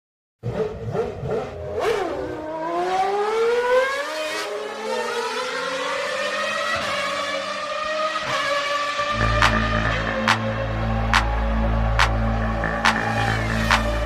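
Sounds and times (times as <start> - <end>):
racing car engine accelerating: 0.4 - 14.0.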